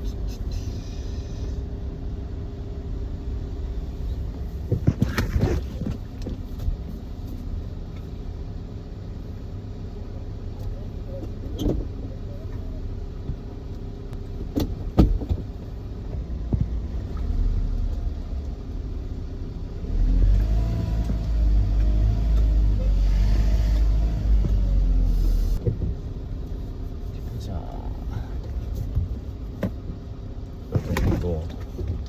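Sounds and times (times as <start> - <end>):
road rumble: 0.0 - 32.0
vehicle engine accelerating: 16.2 - 25.7.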